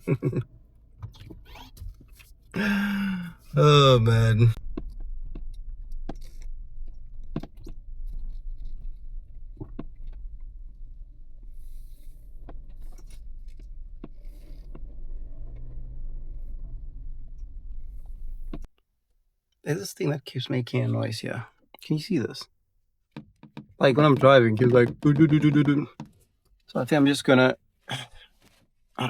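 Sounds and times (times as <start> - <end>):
car road and engine rumble: 3.3 - 18.7.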